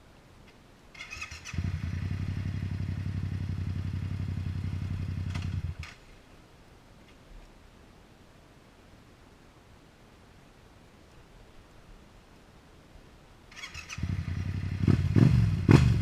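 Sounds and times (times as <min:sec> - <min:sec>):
motorcycle engine cranking: 0:13.6 - 0:14.2.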